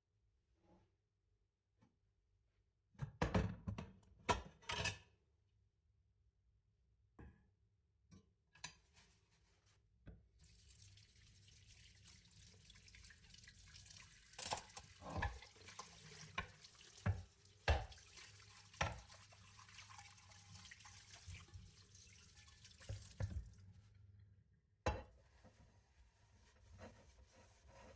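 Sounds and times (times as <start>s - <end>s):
tap running into sink: 12.6s - 23.7s.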